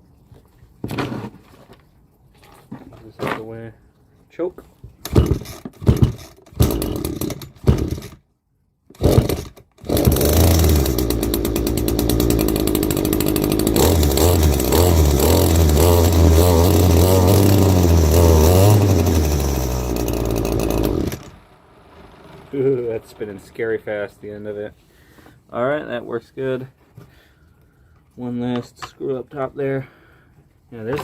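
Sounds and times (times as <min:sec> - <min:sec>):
starter cord pulls: 0:05.0 - 0:08.2, 0:08.9 - 0:21.4
string trimmer engine running: 0:05.1 - 0:08.2, 0:09.0 - 0:23.7.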